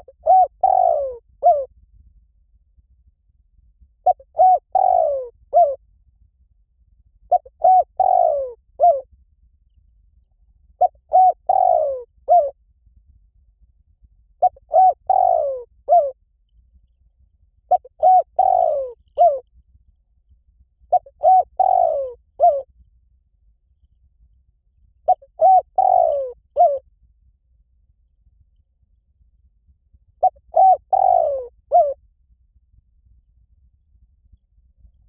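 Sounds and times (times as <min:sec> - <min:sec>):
dove cooing: 0:00.0 - 0:01.7, 0:04.0 - 0:05.8, 0:07.3 - 0:09.0, 0:10.8 - 0:12.6, 0:14.4 - 0:16.2, 0:17.7 - 0:19.4, 0:20.9 - 0:22.6, 0:25.1 - 0:26.8, 0:30.2 - 0:32.0.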